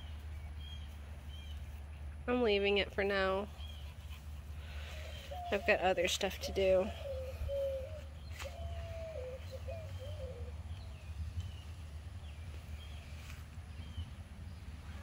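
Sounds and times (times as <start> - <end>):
bird wavering call: 6.7 - 10.6.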